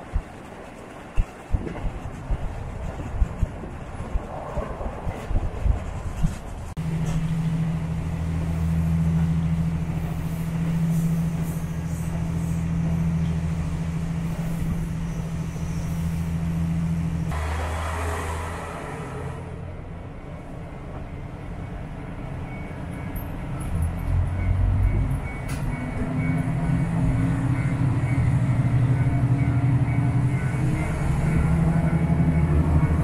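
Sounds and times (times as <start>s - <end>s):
diesel railcar engine drone: 0.0s - 33.0s.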